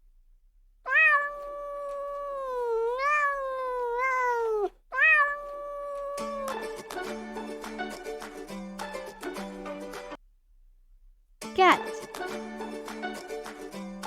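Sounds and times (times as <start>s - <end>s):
cat meowing: 0.9s - 6.6s
music: 6.2s - 10.2s, 11.5s - 14.0s.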